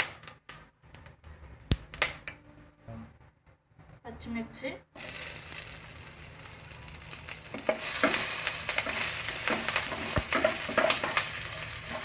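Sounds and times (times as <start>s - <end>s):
chillies sizzling in hot oil: 5.0s - 12.0s
spatula scraping pan: 7.6s - 12.0s.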